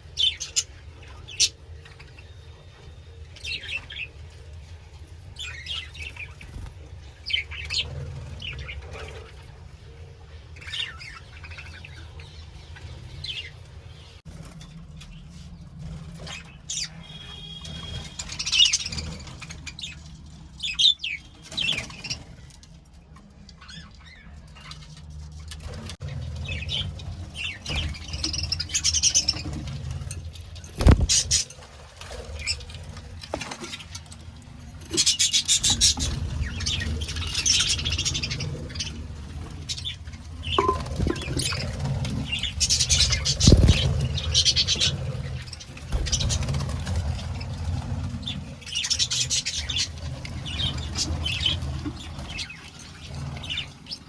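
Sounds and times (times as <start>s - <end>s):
budgerigars chirping: 42.3s - 46.3s.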